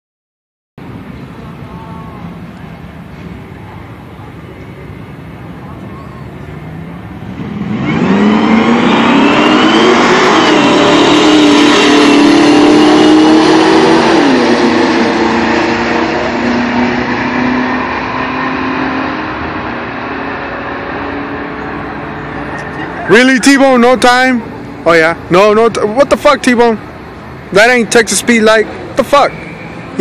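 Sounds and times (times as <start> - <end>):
pickup truck engine accelerating: 6.5 - 25.7.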